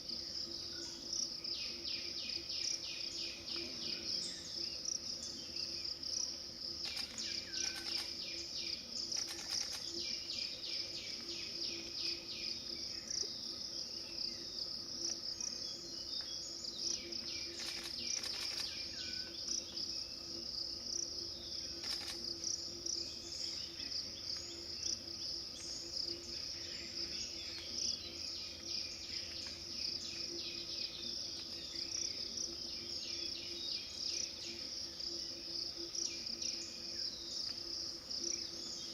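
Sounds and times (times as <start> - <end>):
crickets trilling: 0.0 - 38.9
sharp clicks: 6.8 - 8.2, 9.1 - 9.9, 17.6 - 18.8, 21.8 - 22.3.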